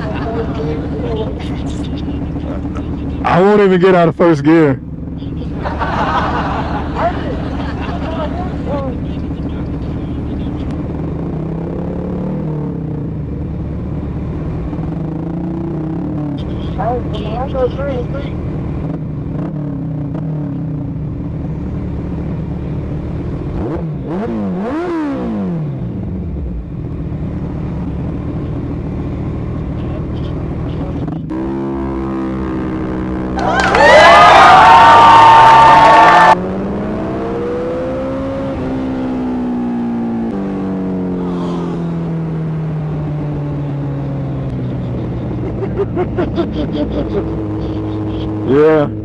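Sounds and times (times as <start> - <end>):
mini motorcycle engine droning: 36.2 - 48.6.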